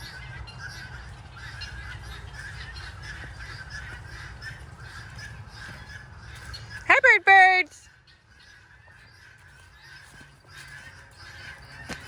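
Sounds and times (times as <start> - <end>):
guinea fowl calling: 0.0 - 12.0.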